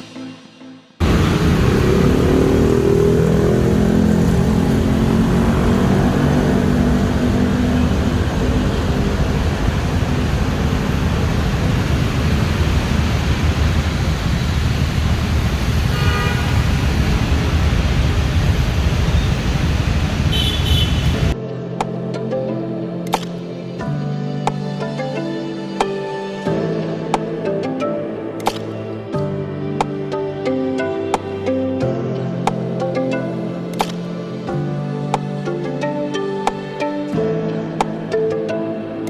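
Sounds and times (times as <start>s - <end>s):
traffic rumble on wet road: 1.0s - 21.4s
vehicle engine pulling away: 1.0s - 21.4s
car horn toot: 15.8s - 17.3s, 20.2s - 21.4s.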